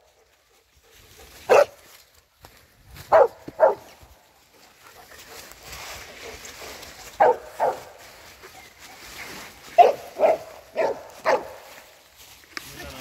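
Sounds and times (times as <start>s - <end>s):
dog barking: 1.4s - 1.8s, 3.1s - 3.9s, 7.2s - 8.0s, 9.7s - 11.7s.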